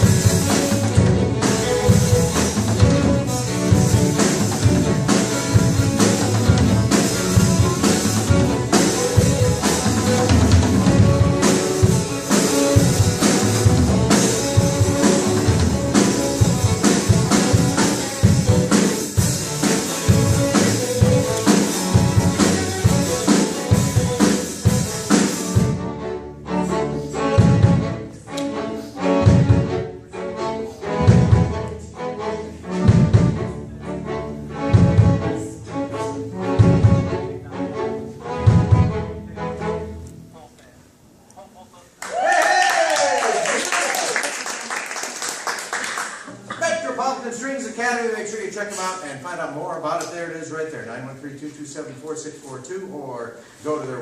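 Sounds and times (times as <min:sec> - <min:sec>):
drums: 0:00.0 - 0:26.0, 0:27.2 - 0:28.1, 0:29.1 - 0:29.9, 0:30.9 - 0:31.7, 0:32.7 - 0:33.6, 0:34.6 - 0:35.4, 0:36.4 - 0:37.3, 0:38.4 - 0:39.1
string ensemble playing: 0:00.0 - 0:41.1.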